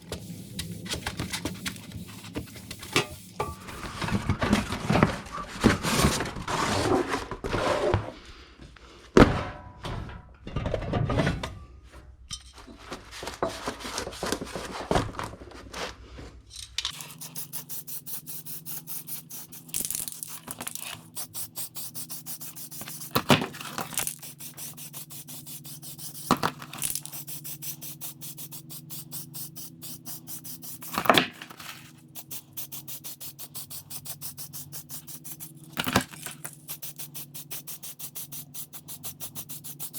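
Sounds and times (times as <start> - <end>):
steady hum: 0.0 - 6.5
scrapes and knocks: 0.0 - 8.2, 9.2 - 16.9
fast even ticking: 32.2 - 35.8, 36.4 - 39.9.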